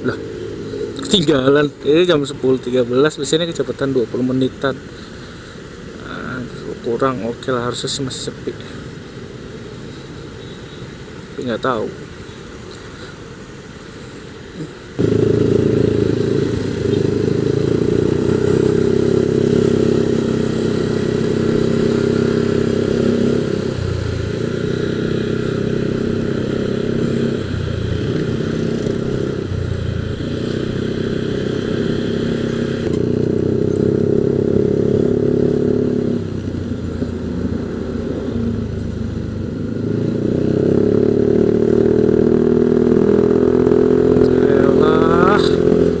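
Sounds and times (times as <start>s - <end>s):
scooter engine under way: 15.0s - 46.0s.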